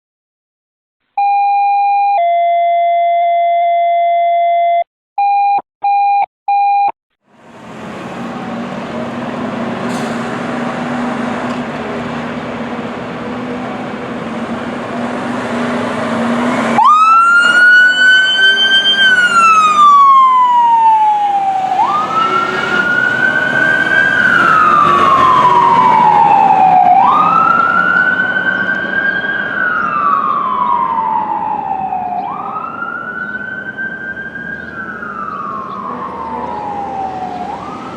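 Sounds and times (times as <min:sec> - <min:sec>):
alert tones and beeps: 0:01.2 - 0:07.0
diesel truck engine running: 0:07.2 - 0:17.6
siren winding up and down: 0:16.7 - 0:37.9.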